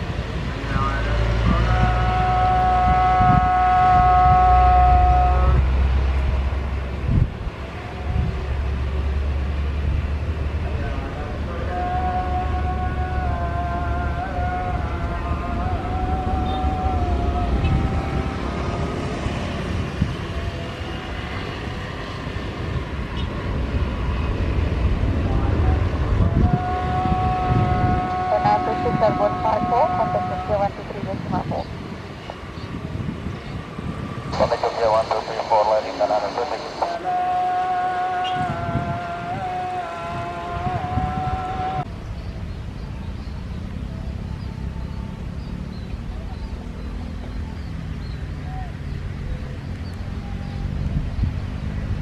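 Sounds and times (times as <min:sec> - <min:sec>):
wind on microphone: 0:00.0 - 0:08.9, 0:11.5 - 0:35.2, 0:36.6 - 0:42.4, 0:49.2 - 0:52.0
deep jet engine rumble: 0:00.0 - 0:41.9
jet engine high whine: 0:11.4 - 0:41.9.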